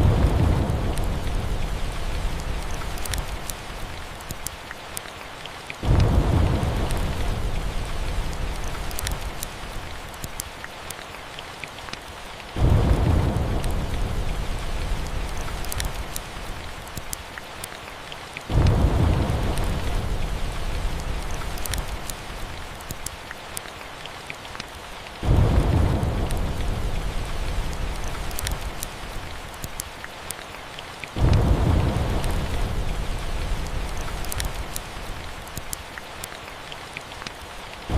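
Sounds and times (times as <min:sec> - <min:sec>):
thunder rolling: 0:00.0 - 0:03.5, 0:05.8 - 0:09.4, 0:12.6 - 0:16.0, 0:18.5 - 0:21.5, 0:25.2 - 0:28.8, 0:31.2 - 0:34.8
sharp crackles: 0:00.0 - 0:37.9
steady rain falling: 0:00.0 - 0:37.9.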